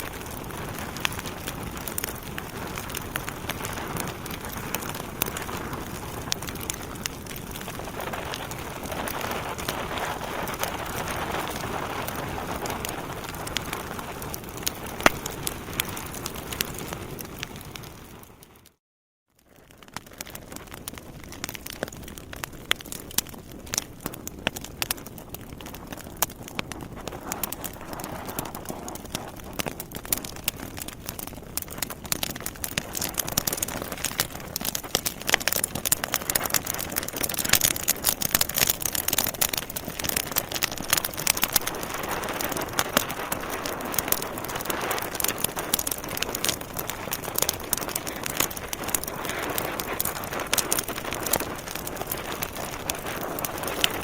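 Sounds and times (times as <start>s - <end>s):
wood fire crackling and popping: 0.0s - 18.8s, 19.4s - 54.0s.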